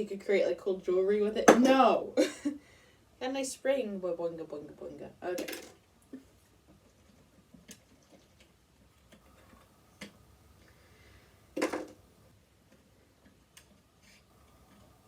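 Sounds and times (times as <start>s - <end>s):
clatter of small parts: 5.4s - 5.9s.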